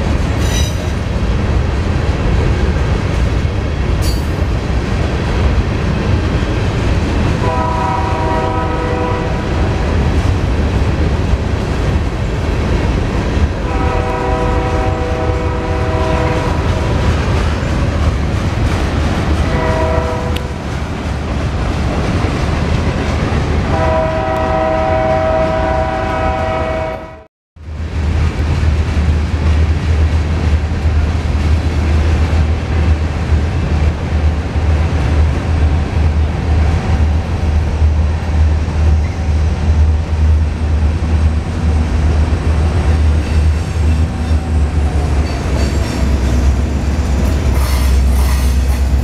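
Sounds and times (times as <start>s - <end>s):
freight train rumble and clatter: 0.0s - 49.0s
locomotive air horn blasts: 7.4s - 9.6s, 13.6s - 16.6s, 19.4s - 20.5s, 23.7s - 27.3s.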